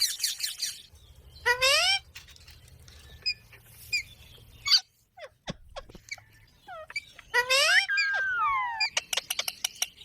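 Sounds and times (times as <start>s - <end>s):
parrot chirps and squeaks: 0.0s - 10.0s
parrot calling: 6.1s - 9.5s.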